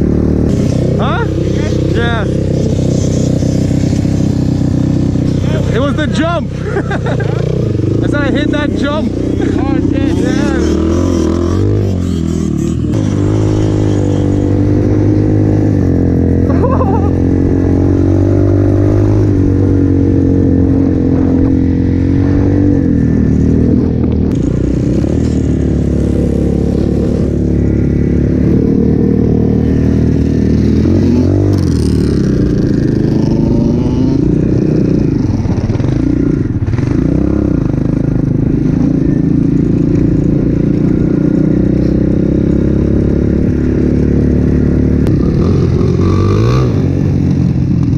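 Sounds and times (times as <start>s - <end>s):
motorbike engine revving: 0.0s - 47.9s.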